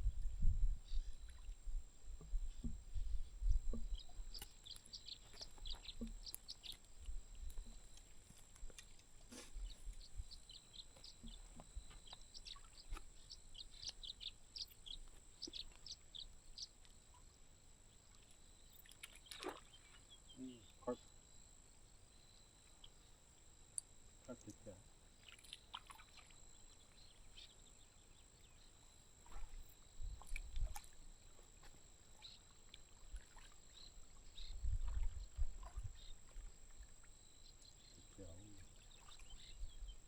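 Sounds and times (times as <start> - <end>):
low wind rumble on microphone: 0.0 - 4.4, 34.3 - 36.6
birds chirping: 2.2 - 8.0, 9.3 - 17.2, 18.8 - 21.0, 32.2 - 36.5, 37.4 - 40.0.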